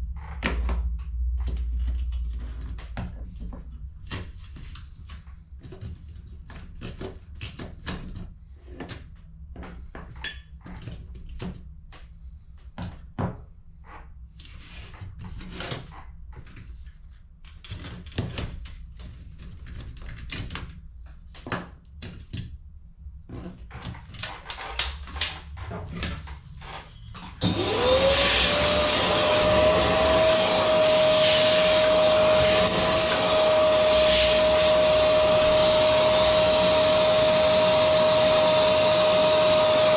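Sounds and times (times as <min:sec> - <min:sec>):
electric vacuum whining: 0:27.2 - 0:39.9.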